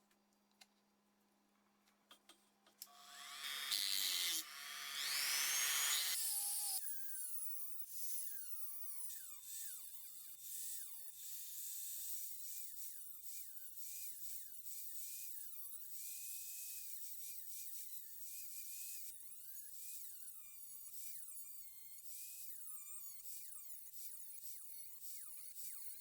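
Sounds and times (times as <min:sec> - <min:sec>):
power tool whining: 0:02.9 - 0:06.8.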